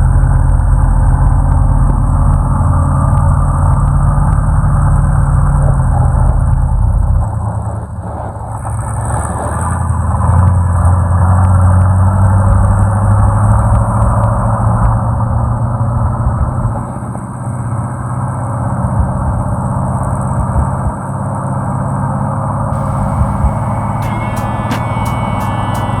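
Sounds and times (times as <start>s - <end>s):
truck engine running: 22.8s - 26.0s.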